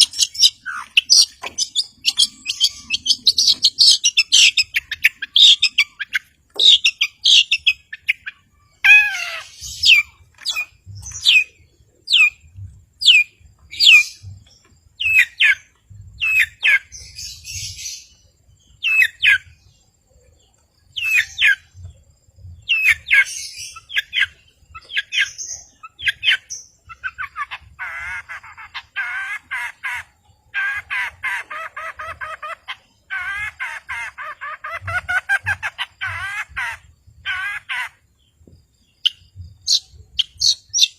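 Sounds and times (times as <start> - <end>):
shrike singing: 0.0 - 12.4.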